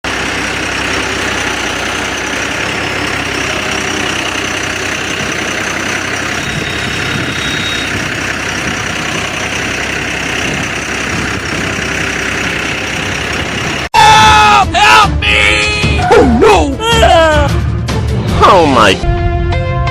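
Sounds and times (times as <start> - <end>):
motor running steadily: 0.1 - 13.9.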